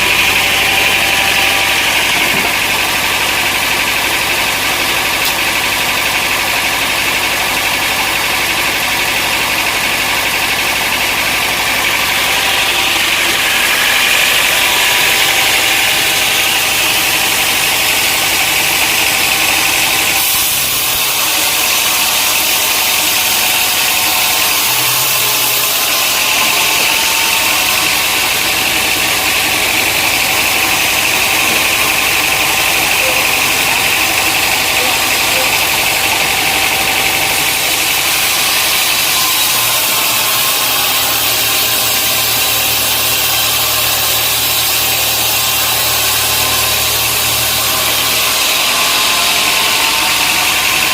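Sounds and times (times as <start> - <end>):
sawmill machinery running: 0.0 - 50.9.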